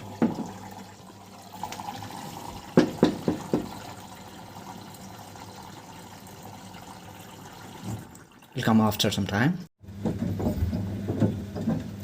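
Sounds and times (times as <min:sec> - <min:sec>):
washing machine filling with water: 0:00.0 - 0:09.5.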